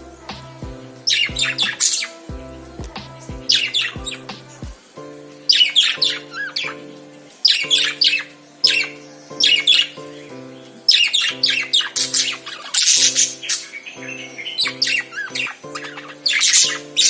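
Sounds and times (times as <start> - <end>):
soft background music: 0.0 - 17.0
lovebirds squawking: 1.0 - 2.3, 10.6 - 17.0.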